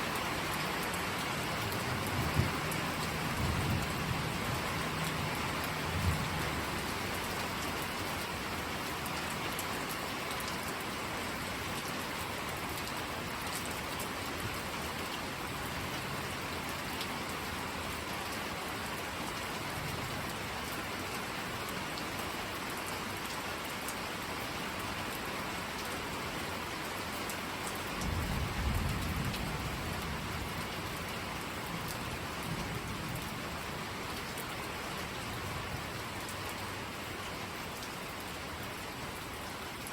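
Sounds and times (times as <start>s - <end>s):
steady rain falling: 0.0s - 39.9s
low rumble of thunder: 1.9s - 6.7s, 28.0s - 33.9s.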